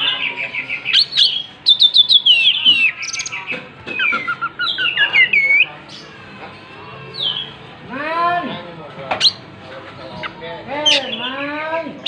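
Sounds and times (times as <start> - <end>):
songbird singing whistled notes: 0.1 - 6.0.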